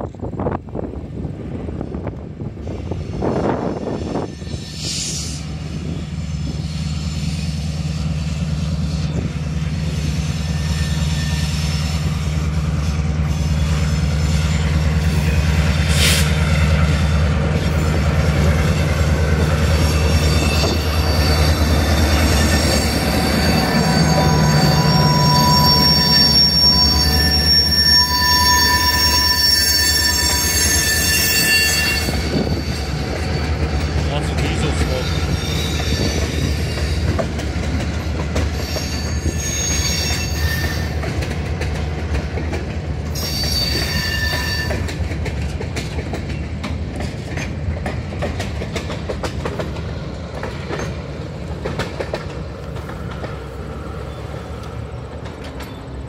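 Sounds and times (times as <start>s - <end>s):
diesel locomotive rumbling past: 0.0s - 56.0s
wheels squealing: 9.9s - 16.4s, 17.6s - 34.0s, 34.9s - 41.4s, 43.0s - 45.0s.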